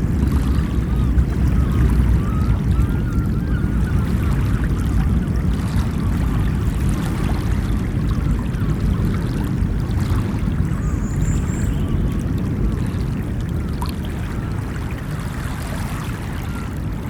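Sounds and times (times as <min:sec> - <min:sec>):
ocean surf washing: 0:00.0 - 0:17.0
faint high chirp: 0:10.7 - 0:12.2.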